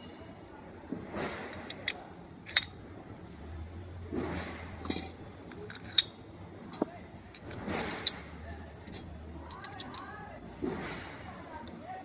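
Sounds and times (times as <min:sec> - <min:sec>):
metal tools clinking: 0:01.6 - 0:02.8, 0:04.8 - 0:08.2, 0:08.8 - 0:10.2.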